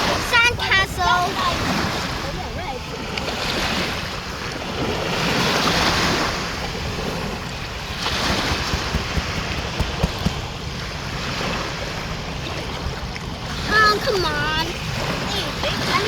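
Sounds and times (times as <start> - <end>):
sea surf washing onto beach: 0.0 - 16.0
light taps: 8.3 - 10.4.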